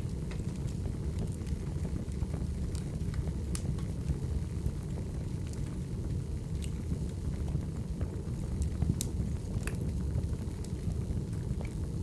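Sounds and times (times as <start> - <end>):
fire flames rumbling: 0.0 - 12.0
wood crackling and popping: 0.0 - 12.0.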